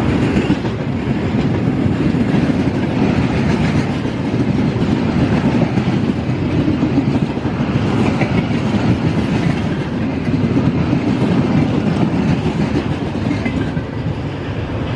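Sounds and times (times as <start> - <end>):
train wheels rumbling on rails: 0.0 - 14.9.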